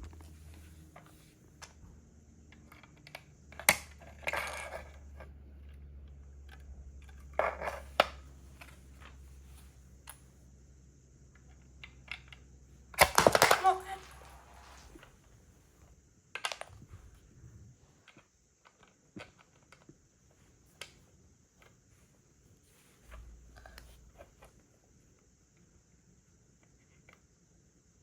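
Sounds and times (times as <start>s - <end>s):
plastic bricks clicking and rattling: 13.0s - 14.8s.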